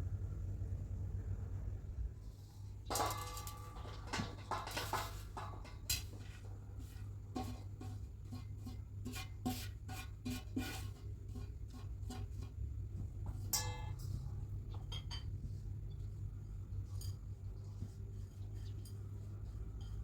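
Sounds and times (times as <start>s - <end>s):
steady low hum: 0.0s - 9.2s
utensils and dishes tapping: 2.9s - 6.4s, 13.3s - 15.4s.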